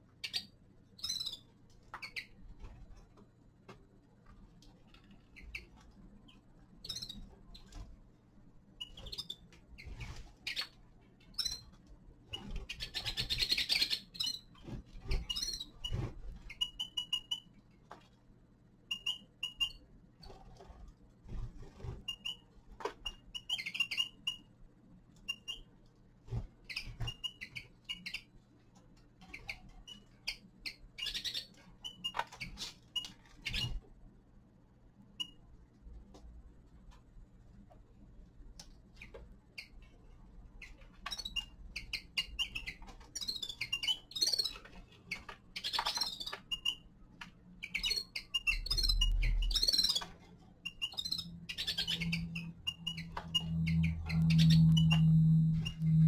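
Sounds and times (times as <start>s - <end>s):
finches chirping: 0.2s - 2.4s, 5.2s - 7.8s, 8.8s - 10.7s, 11.3s - 11.7s, 12.3s - 14.5s, 15.1s - 17.5s, 18.9s - 19.8s, 22.0s - 24.5s, 26.6s - 28.3s, 29.2s - 33.8s, 40.6s - 46.8s, 47.6s - 56.0s.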